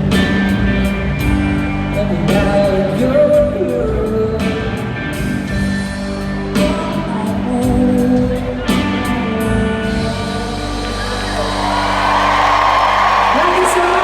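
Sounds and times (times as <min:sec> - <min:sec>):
live band music: 0:00.0 - 0:14.0
person singing: 0:01.8 - 0:05.0, 0:06.5 - 0:11.2.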